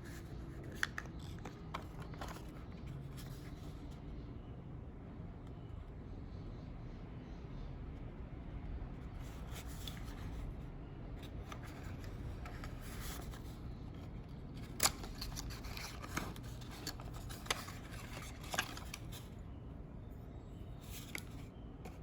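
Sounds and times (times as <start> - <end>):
packaging rustling and scraping: 0.0 - 3.9, 11.2 - 19.4
steady low hum: 0.0 - 22.0.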